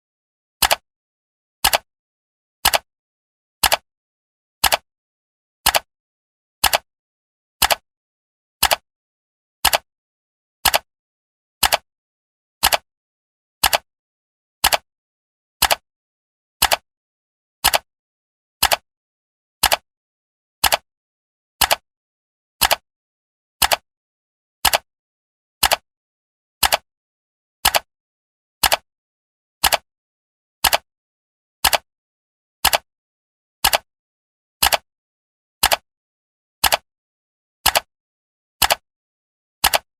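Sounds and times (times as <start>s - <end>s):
clock ticking: 5.6s - 5.9s, 15.6s - 15.8s, 19.6s - 19.8s, 20.6s - 20.8s, 29.6s - 29.8s, 30.6s - 30.8s, 31.6s - 31.8s, 33.6s - 33.9s, 35.6s - 35.8s, 36.6s - 36.8s, 37.6s - 37.9s, 38.6s - 38.8s, 39.6s - 39.9s.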